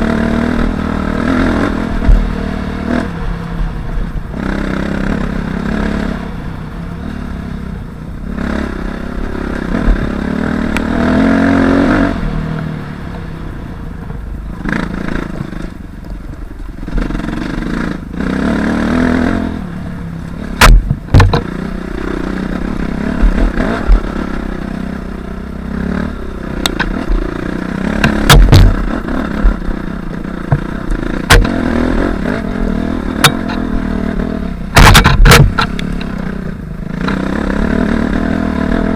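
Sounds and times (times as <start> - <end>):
dirt bike engine revving: 0.0 - 3.5, 4.3 - 7.6, 8.2 - 13.1, 14.5 - 15.8, 16.8 - 38.9
sharp knocks and clatter: 20.6 - 21.6, 27.9 - 29.6, 30.4 - 31.6, 34.7 - 36.1.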